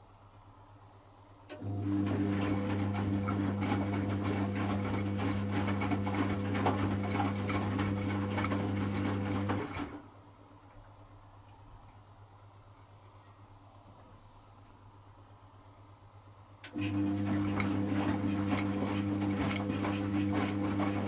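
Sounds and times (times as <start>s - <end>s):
washing machine motor hum: 1.5s - 10.2s, 16.6s - 21.0s
wet laundry sloshing: 1.8s - 10.0s, 16.8s - 21.0s.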